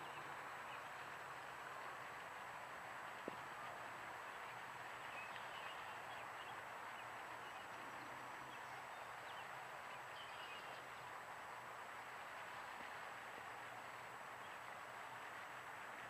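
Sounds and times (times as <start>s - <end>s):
steady background hiss: 0.0s - 16.0s
faint bird chirps: 4.3s - 11.1s.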